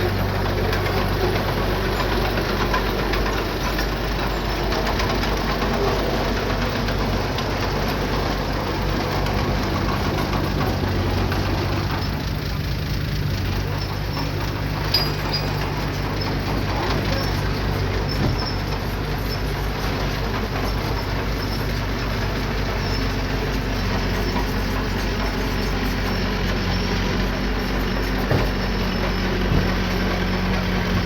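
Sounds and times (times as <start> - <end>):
diesel engine running: 0.0 - 31.0
sharp metallic knocks: 28.2 - 29.9.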